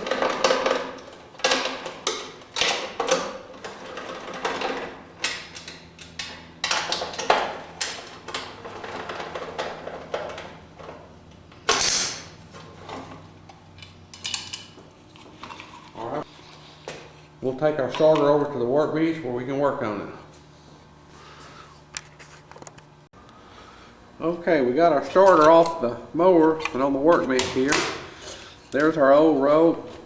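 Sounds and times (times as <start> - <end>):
tools clicking rattling and scraping: 0.0 - 18.4.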